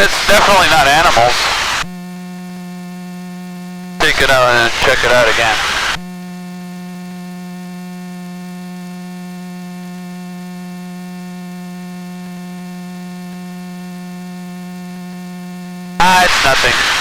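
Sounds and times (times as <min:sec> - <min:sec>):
electrical hum in intercom: 0:00.0 - 0:01.9, 0:04.0 - 0:06.1, 0:16.0 - 0:17.0.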